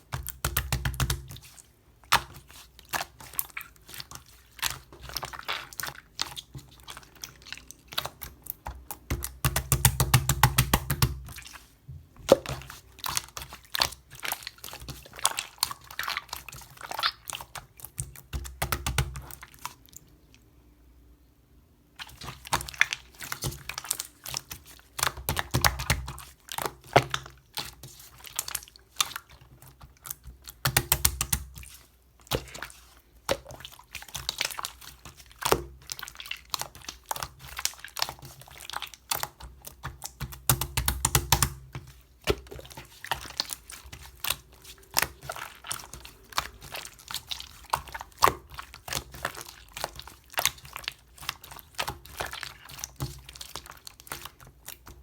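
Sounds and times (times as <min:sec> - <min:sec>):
slime squelching: 0:00.0 - 0:20.5, 0:21.9 - 0:55.0
slime clicking and crackling: 0:22.0 - 0:55.0.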